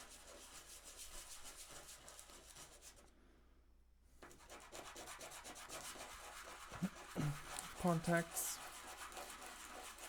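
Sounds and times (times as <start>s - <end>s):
sandpaper rubbing on wood: 7.8s - 10.0s.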